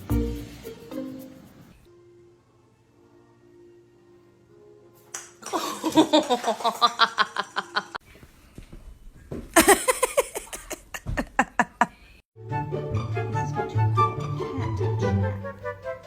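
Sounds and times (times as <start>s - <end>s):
young child giggling: 9.6s - 12.0s.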